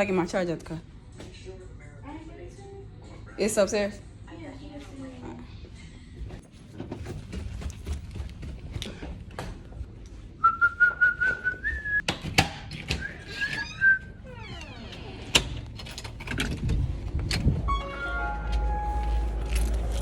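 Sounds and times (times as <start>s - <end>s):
whistling: 10.4s - 12.0s, 13.0s - 14.2s.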